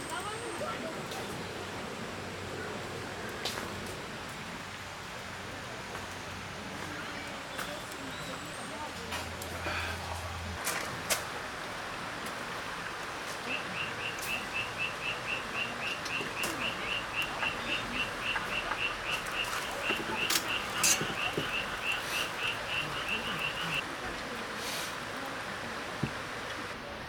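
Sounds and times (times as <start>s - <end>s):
background insects hissing: 11.4s - 23.8s
cricket chirping: 13.6s - 23.8s.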